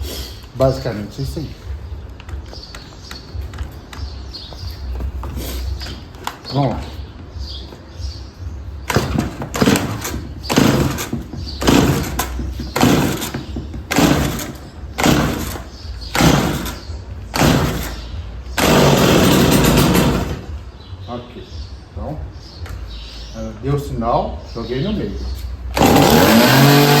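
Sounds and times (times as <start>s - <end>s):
chainsaw recoil starter pulls: 9.0s - 13.3s, 13.9s - 16.8s, 18.6s - 20.4s, 25.8s - 27.0s
chainsaw engine running: 9.0s - 16.8s, 17.4s - 17.9s, 18.6s - 20.4s, 25.7s - 27.0s.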